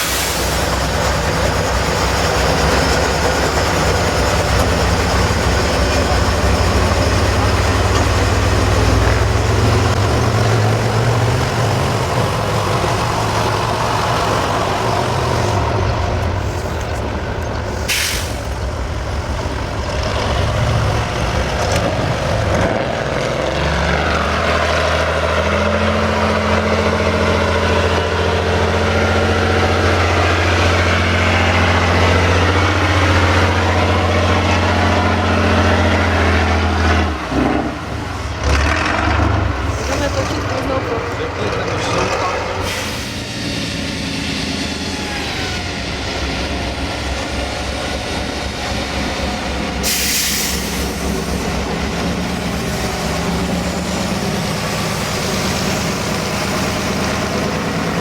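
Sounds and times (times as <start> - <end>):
short sharp hiss: 17.8 - 18.6.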